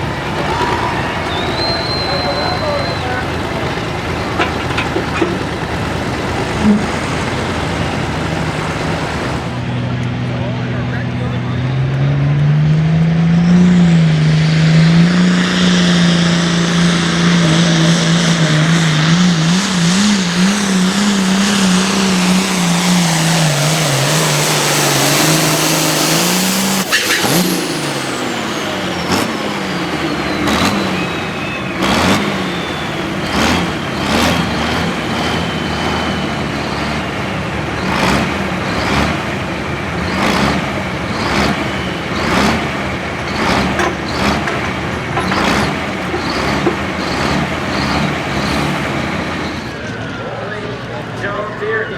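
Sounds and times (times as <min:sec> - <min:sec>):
tractor engine at high revs: 0:00.0 - 0:51.9
turbo whistle falling in pitch: 0:00.5 - 0:03.2.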